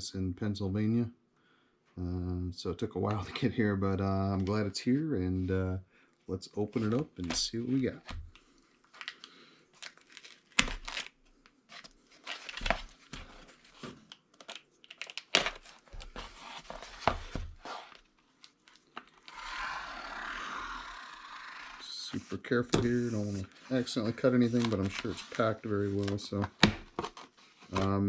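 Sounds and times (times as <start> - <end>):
packing tape tearing: 9.0 - 12.9, 14.3 - 21.9
paper and cardboard rustling: 15.4 - 19.2, 22.1 - 28.0.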